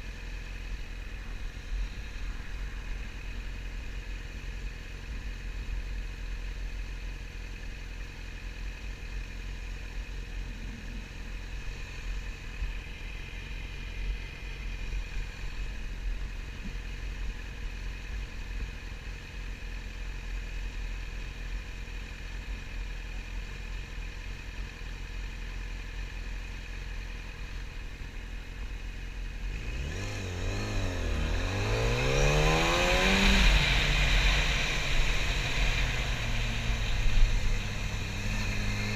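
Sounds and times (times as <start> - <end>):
motorcycle engine revving: 27.5 - 38.9.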